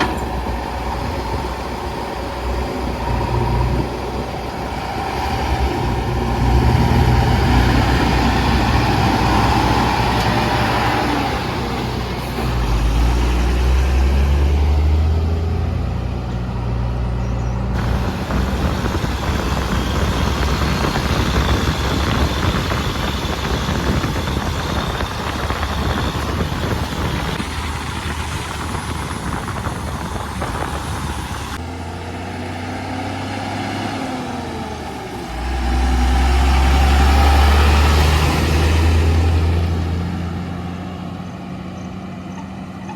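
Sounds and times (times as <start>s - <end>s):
backhoe diesel engine running: 0.0s - 31.7s.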